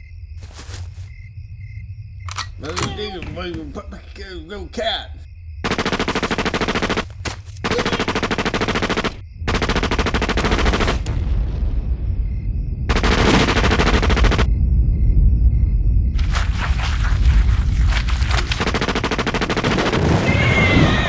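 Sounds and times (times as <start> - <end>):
rapid rattling: 5.6 - 11.0
low rumble: 9.2 - 18.6.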